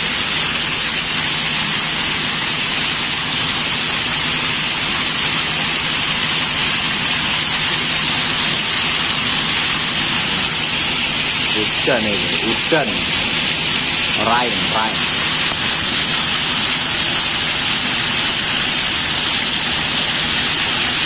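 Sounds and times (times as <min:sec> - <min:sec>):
rainwater splashing on metal deck: 0:00.0 - 0:21.0
heavy rain pouring: 0:05.8 - 0:21.0.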